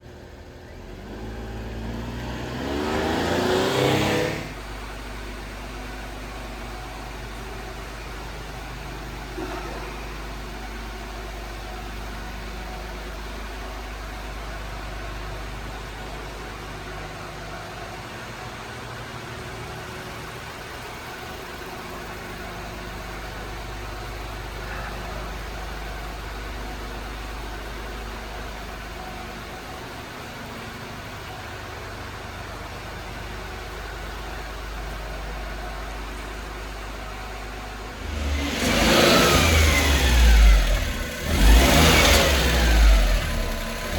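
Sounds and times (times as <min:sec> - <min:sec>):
small engine starting up: 0:38.0 - 0:43.9.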